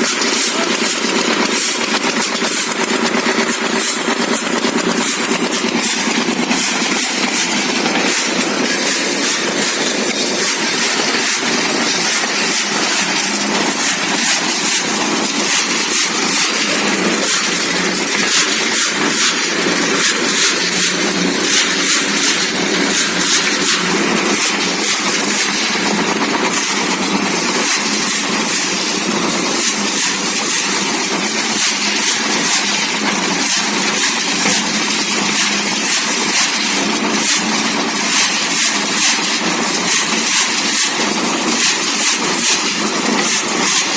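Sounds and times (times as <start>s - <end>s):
small model vehicle motor running: 0.0s - 43.9s.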